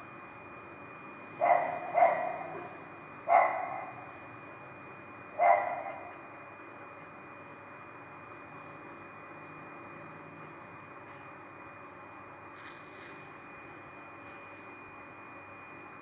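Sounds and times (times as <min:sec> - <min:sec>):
dog barking: 0:01.4 - 0:02.7, 0:03.3 - 0:04.0, 0:05.4 - 0:06.1.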